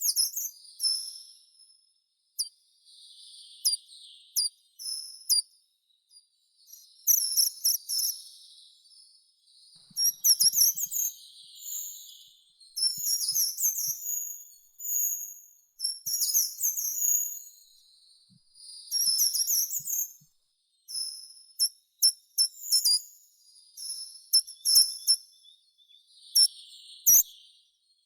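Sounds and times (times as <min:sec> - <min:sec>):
faint background bird twitter: 0:00.0 - 0:28.0
songbird singing: 0:24.3 - 0:27.7.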